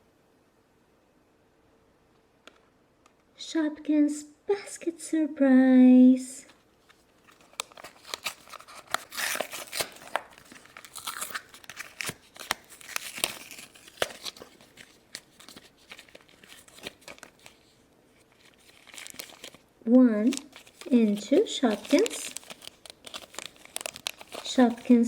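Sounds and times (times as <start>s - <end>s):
packaging tearing and crinkling: 7.2s - 25.0s.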